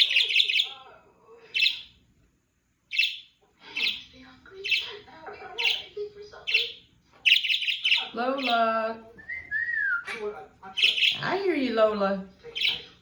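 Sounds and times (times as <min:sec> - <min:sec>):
parrot sharp calls: 0:00.0 - 0:00.7, 0:06.5 - 0:08.6, 0:10.8 - 0:11.4.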